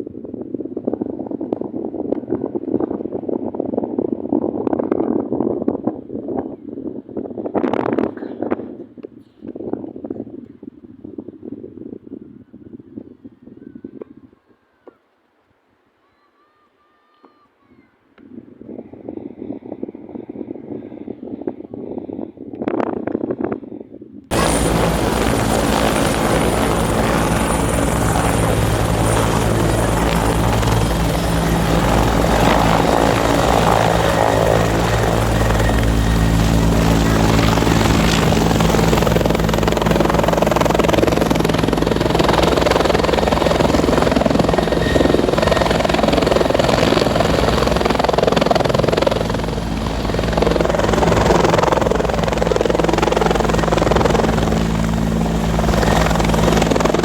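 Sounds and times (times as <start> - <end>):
helicopter rotor and engine: 24.3 - 57.0.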